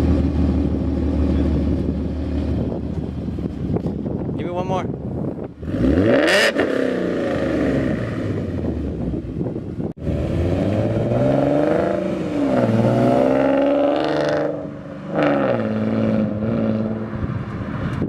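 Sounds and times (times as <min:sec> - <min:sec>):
car engine revving: 0:05.4 - 0:09.3, 0:10.0 - 0:17.9.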